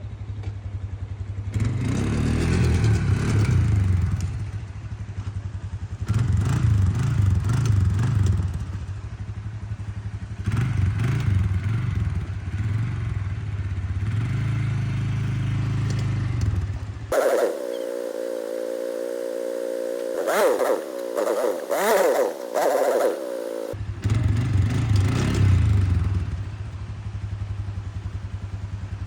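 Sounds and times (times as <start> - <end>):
vehicle engine revving: 17.1 - 26.2.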